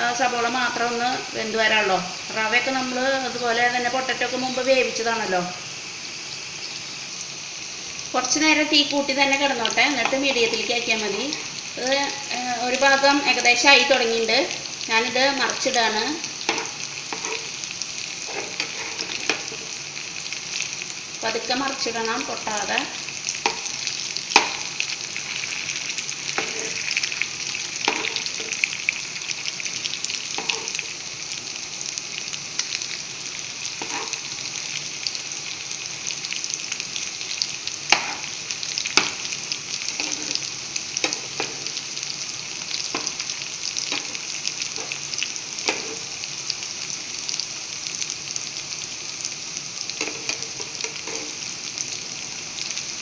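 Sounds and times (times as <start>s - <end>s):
food sizzling in oil: 0.0s - 53.0s
metal spoon knocking a pan: 24.3s - 24.7s.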